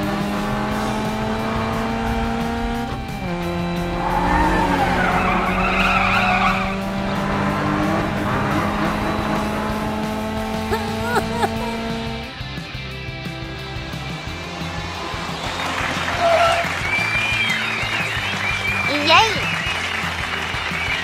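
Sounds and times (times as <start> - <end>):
cartoon race car engine: 0.0 - 12.3, 14.2 - 21.0
background music: 0.0 - 21.0
tyres squealing: 3.1 - 12.1, 15.8 - 19.6.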